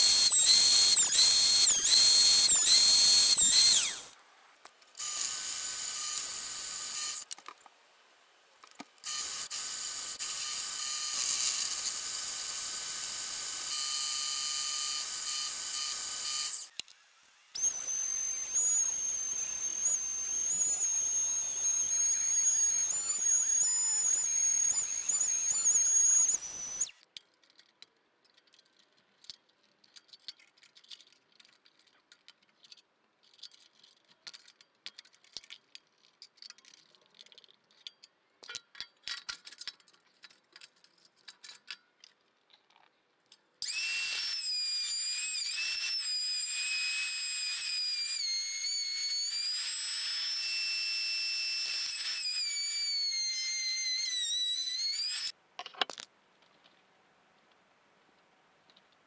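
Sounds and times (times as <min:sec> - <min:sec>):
orbital sander whining: 0:00.0 - 0:04.1, 0:17.6 - 0:27.0, 0:43.6 - 0:55.3
router whining: 0:00.0 - 0:04.2, 0:05.0 - 0:07.3, 0:09.0 - 0:27.0, 0:43.6 - 0:55.4.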